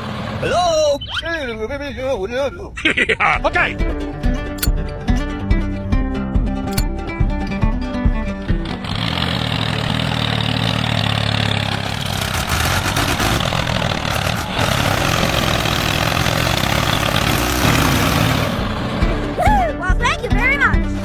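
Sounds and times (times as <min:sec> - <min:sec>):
small engine humming: 0:08.5 - 0:19.4.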